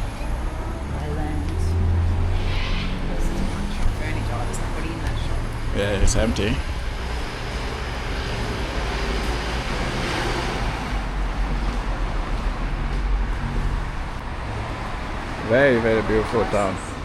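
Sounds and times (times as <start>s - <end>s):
car driving past: 0.0s - 17.0s.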